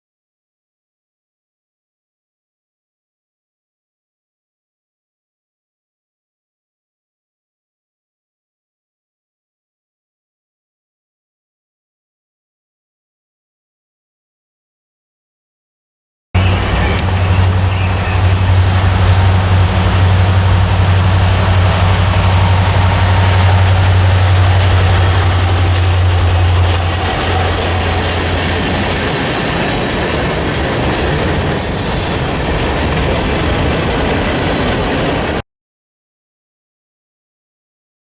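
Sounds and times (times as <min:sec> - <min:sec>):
diesel locomotive engine drone: 0:16.4 - 0:35.4
rail cars rolling on track: 0:16.4 - 0:35.4.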